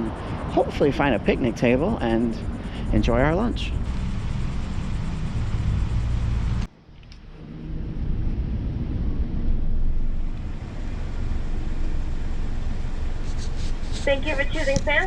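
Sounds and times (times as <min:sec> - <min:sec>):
car idling: 0:00.0 - 0:06.7, 0:10.0 - 0:15.0
wind buffeting microphone: 0:00.0 - 0:06.7
low traffic rumble: 0:00.0 - 0:15.0.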